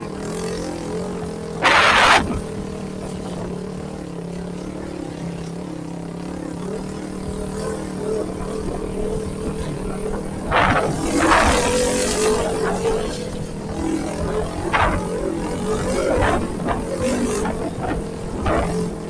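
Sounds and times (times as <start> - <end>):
motorcycle engine running: 0.0 - 19.0
loud rush of noise: 1.6 - 2.5, 7.9 - 19.0.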